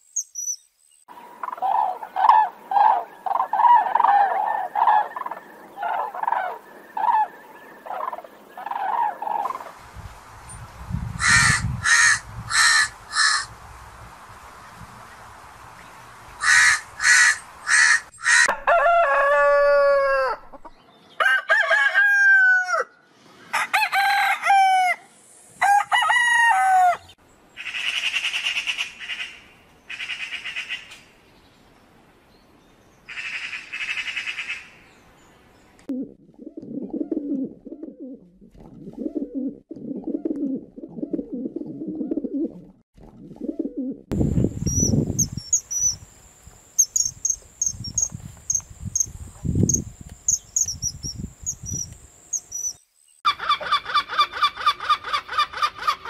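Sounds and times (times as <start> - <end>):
high fast insect-like chirping: 44.2 - 52.9
bird calls gliding down in pitch: 44.7 - 46.0.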